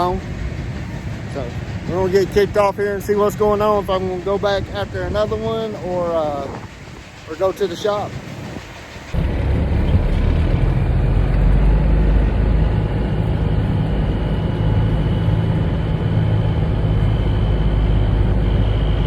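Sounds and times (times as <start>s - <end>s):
diesel truck engine running: 7.5s - 18.9s.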